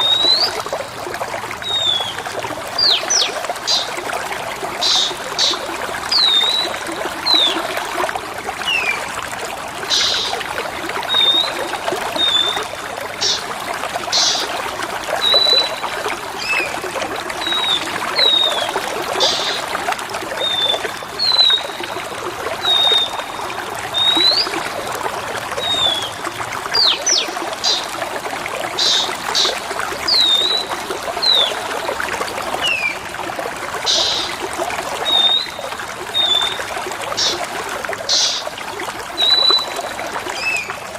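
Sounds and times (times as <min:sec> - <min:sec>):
water trickling: 0:00.0 - 0:40.9
bird whistling and chirping: 0:35.1 - 0:35.6, 0:39.2 - 0:39.8.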